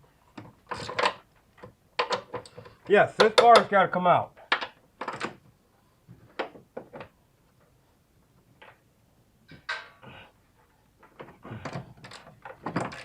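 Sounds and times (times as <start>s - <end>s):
metal tools knocking and clanking: 9.5s - 10.0s, 11.0s - 13.0s.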